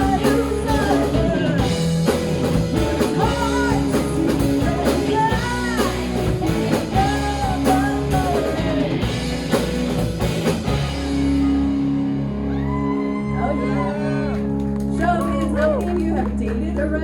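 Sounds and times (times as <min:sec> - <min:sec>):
person singing: 0:00.0 - 0:01.9, 0:02.8 - 0:09.0
live rock band playing: 0:00.0 - 0:16.4.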